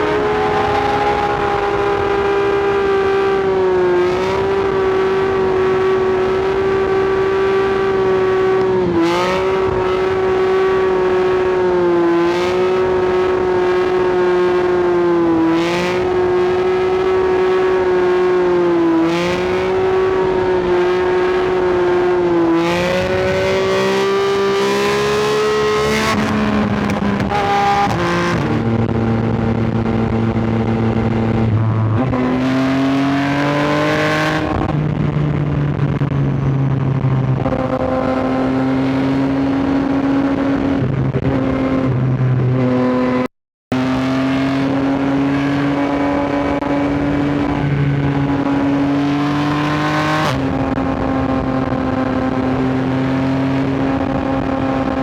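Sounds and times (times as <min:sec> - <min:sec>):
motorcycle engine at high revs: 0:00.0 - 0:55.0.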